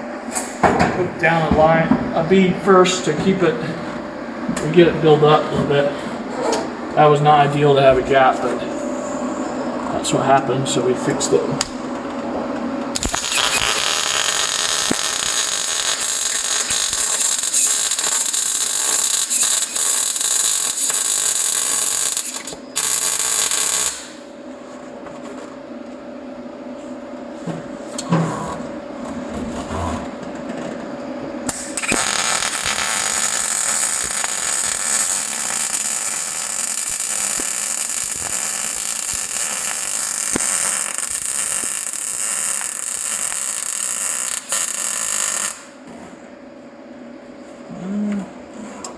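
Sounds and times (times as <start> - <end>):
steady hum: 0.0 - 48.9
welder arc crackling: 12.9 - 24.2, 31.5 - 45.8.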